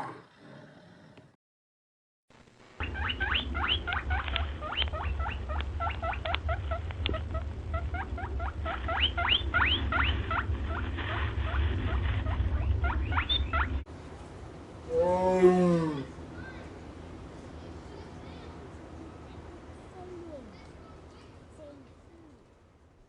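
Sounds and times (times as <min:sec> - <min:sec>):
steady low rumble: 0:02.5 - 0:14.9
small animal squeaking: 0:02.8 - 0:10.8, 0:11.5 - 0:13.8.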